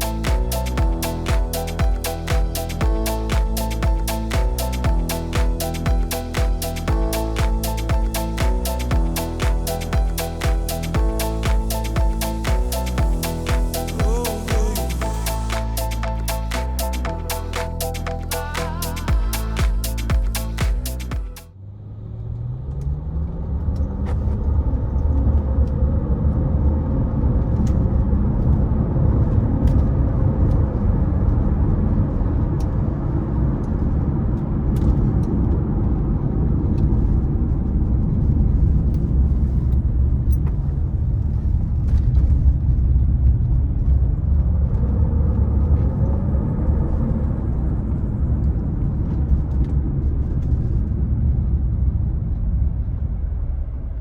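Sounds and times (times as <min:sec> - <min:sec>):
car engine rumbling: 0:00.0 - 0:54.0
road noise: 0:00.0 - 0:54.0.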